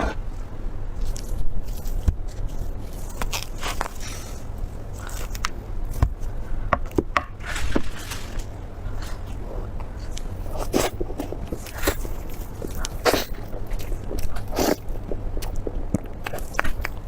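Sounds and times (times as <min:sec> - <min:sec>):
scrapes: 0:00.0 - 0:05.5, 0:07.2 - 0:14.8
biting and chewing: 0:01.0 - 0:06.4, 0:07.0 - 0:17.0.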